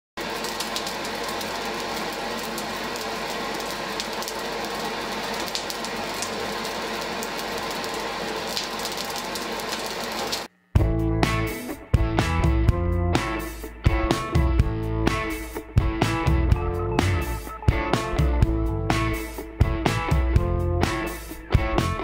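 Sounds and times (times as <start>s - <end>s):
coal fire rushing and crackling: 0.2s - 10.5s.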